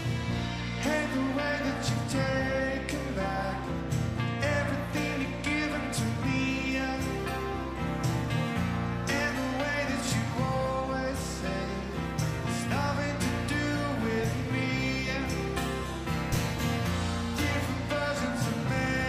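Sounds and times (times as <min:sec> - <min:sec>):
drum strikes: 0:00.0 - 0:02.7
bass: 0:00.0 - 0:19.0
live rock band playing: 0:00.0 - 0:19.0.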